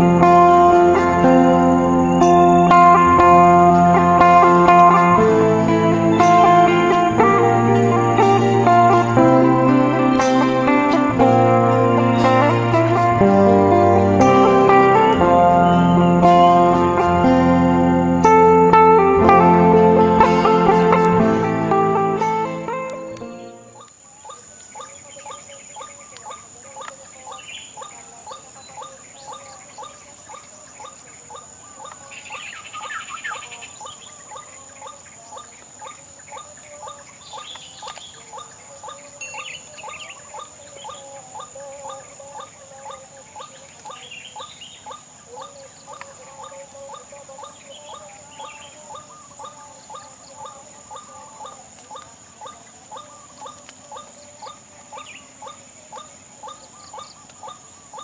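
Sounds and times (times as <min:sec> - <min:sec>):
steady high-pitched tone: 0:00.0 - 0:23.9
high chirps: 0:00.0 - 0:25.9, 0:37.3 - 0:58.0
waterhen calling: 0:00.0 - 0:58.0.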